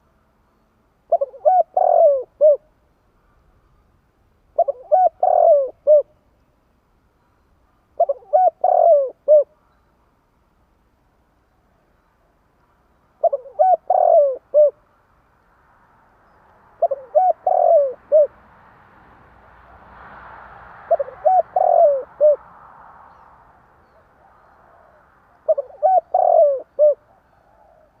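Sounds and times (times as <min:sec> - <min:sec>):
faint background hiss: 0:00.0 - 0:28.0
dove cooing: 0:01.1 - 0:02.7, 0:04.6 - 0:06.1, 0:08.0 - 0:09.7, 0:13.2 - 0:14.8, 0:16.8 - 0:18.3, 0:20.9 - 0:22.4, 0:23.8 - 0:28.0.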